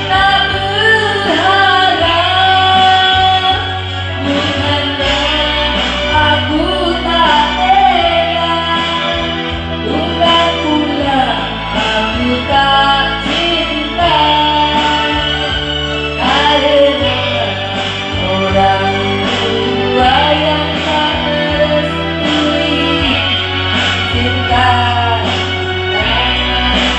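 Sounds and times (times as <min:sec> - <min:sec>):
guitar and bass: 0:00.0 - 0:26.9
person singing: 0:00.0 - 0:26.9.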